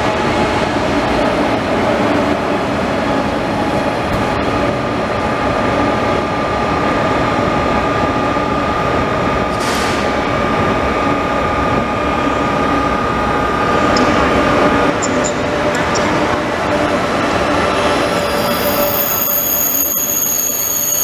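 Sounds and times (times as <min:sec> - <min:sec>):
train rumble: 0:00.0 - 0:21.0
thin steady whine: 0:13.9 - 0:21.0.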